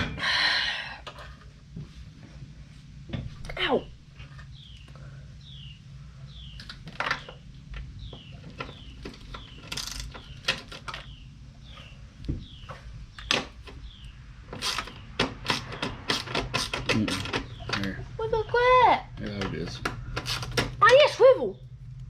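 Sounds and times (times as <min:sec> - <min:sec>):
steady low hum: 0:00.0 - 0:22.0
ratchet and wrench clicks: 0:14.6 - 0:17.5.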